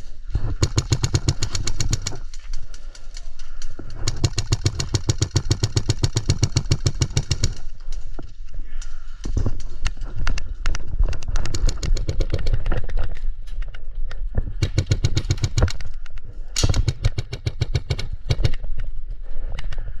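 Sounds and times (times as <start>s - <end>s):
airsoft guns firing bursts: 0.5s - 2.4s, 4.0s - 7.7s, 14.6s - 15.9s, 16.6s - 18.6s.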